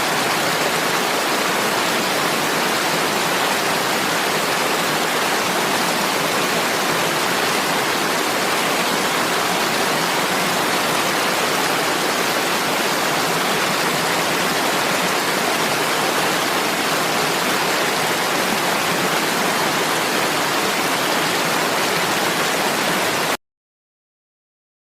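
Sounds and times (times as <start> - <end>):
heavy rain hiss: 0.0 - 23.3.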